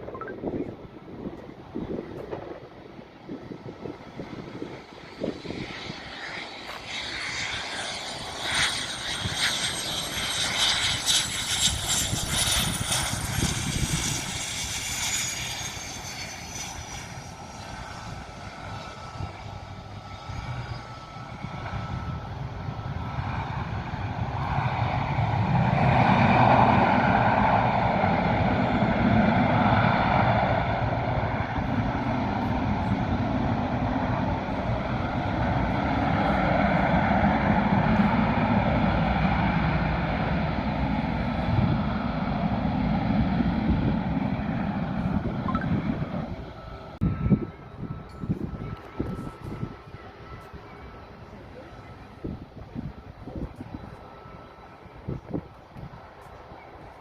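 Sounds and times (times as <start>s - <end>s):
airplane engines passing: 0.0s - 57.0s.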